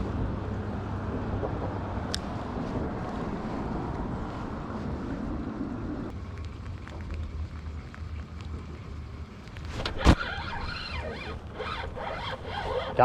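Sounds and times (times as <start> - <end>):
wind rumble on microphone: 0.0 - 10.7
high squeaky sounds: 9.9 - 13.0.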